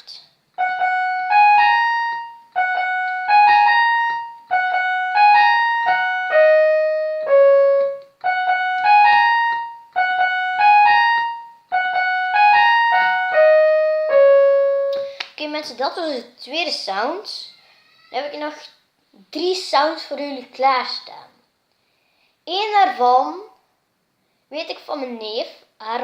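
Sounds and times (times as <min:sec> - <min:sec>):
electronic keyboard piano melody: 0:00.6 - 0:15.2.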